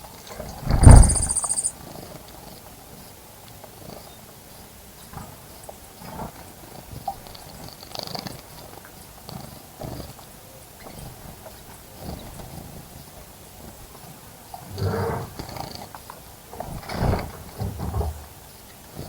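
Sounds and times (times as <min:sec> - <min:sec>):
wings fluttering: 0:00.7 - 0:01.7.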